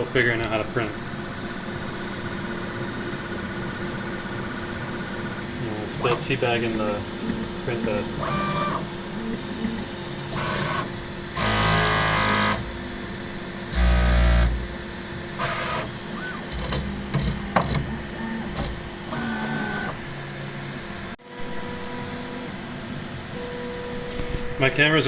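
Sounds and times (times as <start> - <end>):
stepper motors whining: 0.0 - 24.9
printer hum: 0.0 - 25.0.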